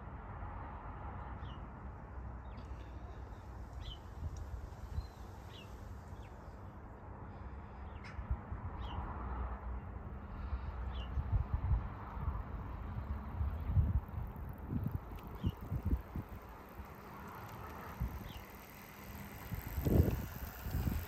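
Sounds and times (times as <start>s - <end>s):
low outdoor rumble: 9.7s - 21.0s.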